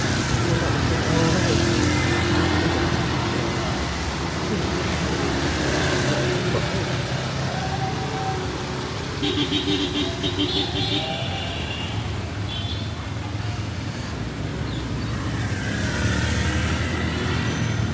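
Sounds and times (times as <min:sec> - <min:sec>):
vehicle engines running: 0:00.0 - 0:17.9.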